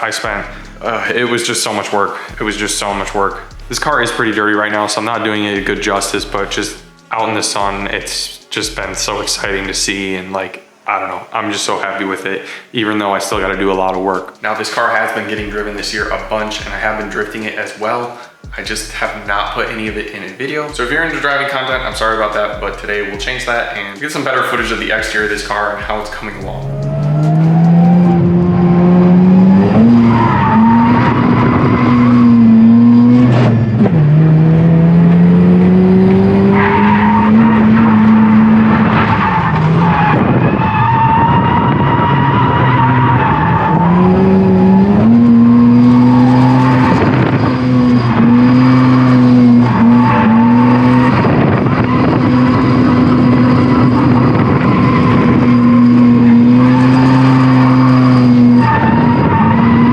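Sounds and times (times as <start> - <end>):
tyres skidding and squealing: 0.0 - 11.4, 13.3 - 59.9
rotary engine revving hard: 2.3 - 4.8, 24.6 - 59.9.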